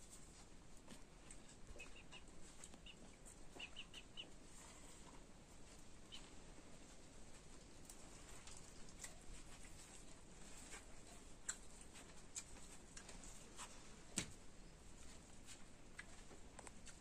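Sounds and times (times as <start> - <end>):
faint bird chirps: 1.7 - 4.3.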